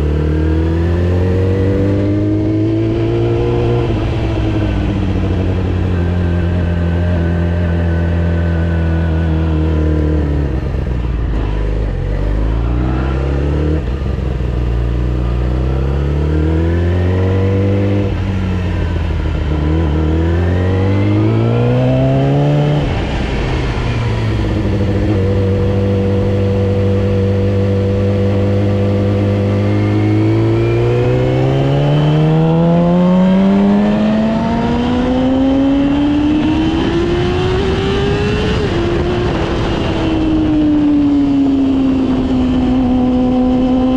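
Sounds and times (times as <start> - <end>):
sport bike engine accelerating: 0.0 - 43.9.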